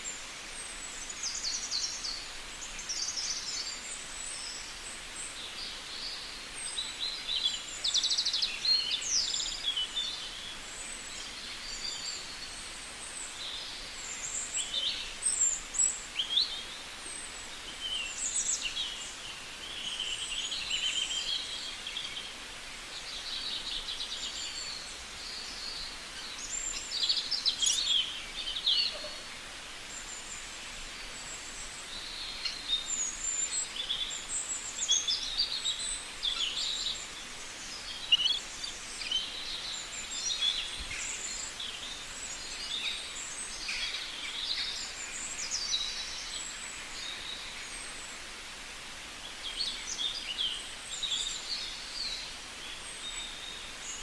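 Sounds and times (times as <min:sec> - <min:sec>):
birds calling and chirping: 0:00.0 - 0:48.3
outdoor background hiss: 0:00.0 - 0:54.0.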